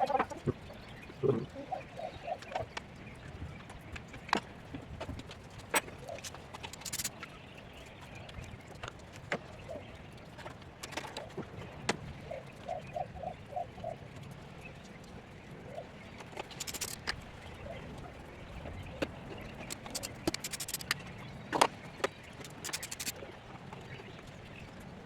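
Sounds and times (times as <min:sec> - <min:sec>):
quick chirp-like squeaks: 0:06.0 - 0:07.1, 0:16.4 - 0:17.2, 0:19.6 - 0:21.0, 0:22.4 - 0:23.1
metal tools clicking and knocking: 0:06.2 - 0:07.1, 0:16.4 - 0:17.2, 0:19.7 - 0:21.0, 0:22.4 - 0:23.1.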